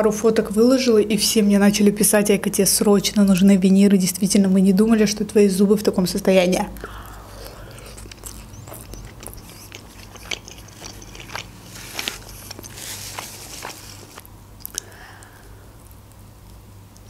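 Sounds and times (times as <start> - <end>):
chewing mouth clicks and crunches: 6.8 - 17.0.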